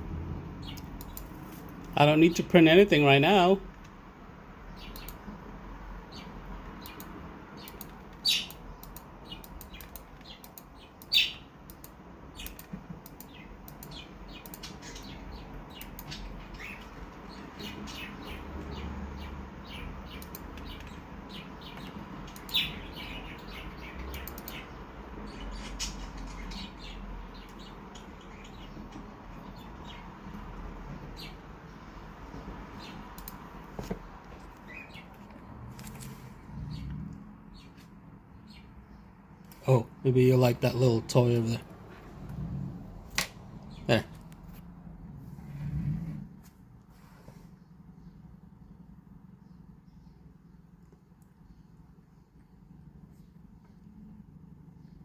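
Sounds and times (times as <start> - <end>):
cockatiel chirps and clicks: 6.8 - 18.4, 19.7 - 24.7.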